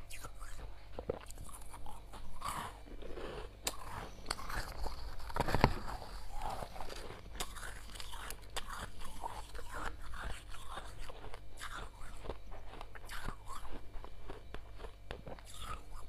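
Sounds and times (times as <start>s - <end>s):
chewing crunchy frost: 0.0s - 16.0s.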